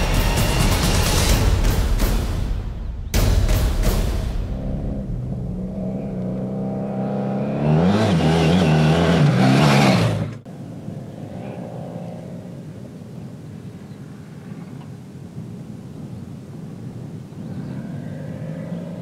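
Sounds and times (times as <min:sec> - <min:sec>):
motorcycle engine revving past: 0:04.4 - 0:10.4.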